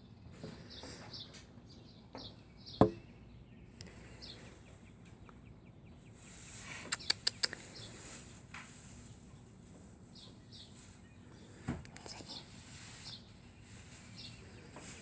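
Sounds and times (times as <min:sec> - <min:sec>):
small birds chirping: 0:00.0 - 0:15.0
sharp knock: 0:02.8 - 0:03.0
sharp clicks: 0:06.9 - 0:07.6.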